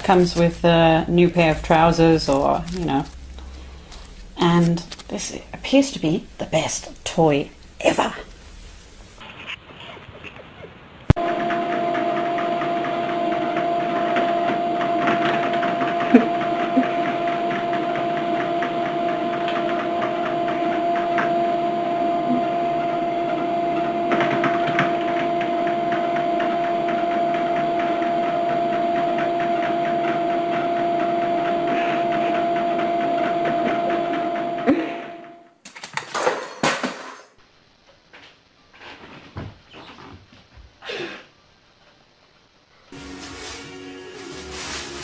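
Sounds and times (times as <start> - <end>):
small electric motor humming: 11.2 - 35.5.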